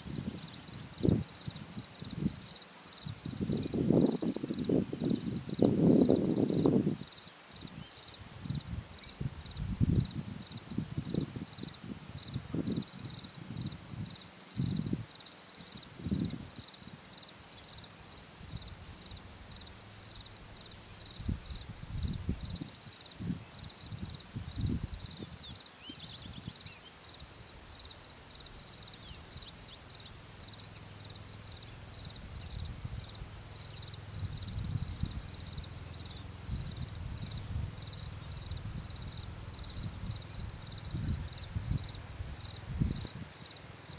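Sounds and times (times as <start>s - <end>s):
insects chirring: 0.0s - 43.9s.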